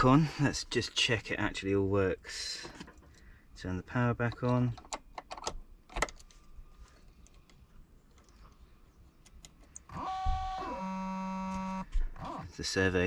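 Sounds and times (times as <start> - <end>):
shower servo motors whining: 9.9 - 12.4.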